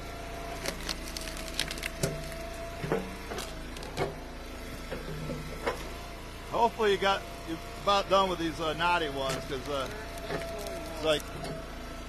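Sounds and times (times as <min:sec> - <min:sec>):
wood splitter running hum: 0:00.0 - 0:12.0
wood cracking and splitting: 0:00.1 - 0:06.1, 0:08.9 - 0:11.9.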